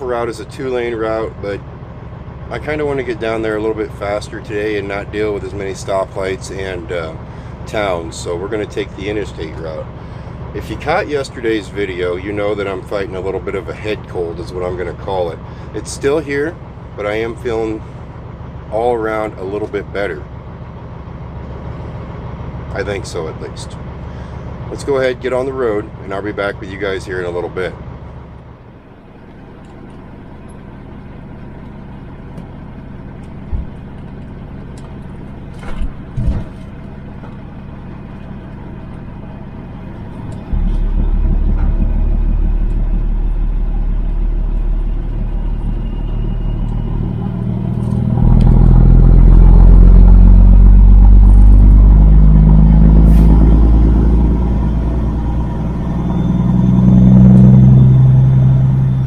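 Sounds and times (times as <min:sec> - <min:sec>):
truck diesel engine: 0:00.0 - 0:59.0
engine knocks: 0:27.8 - 0:59.0.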